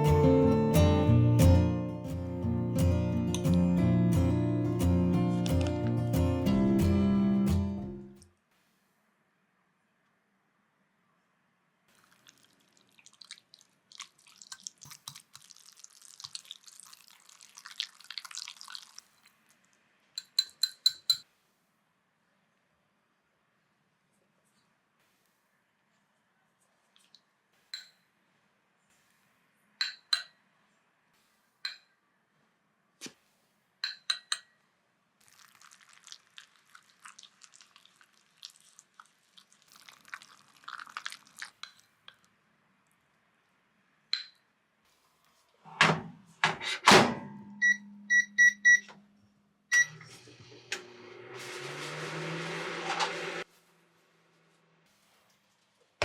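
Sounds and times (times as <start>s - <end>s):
stirring in a container: 11.9s - 21.2s, 35.2s - 42.3s
keypad beeps: 47.6s - 49.0s, 49.7s - 50.1s
microwave humming: 49.7s - 53.4s.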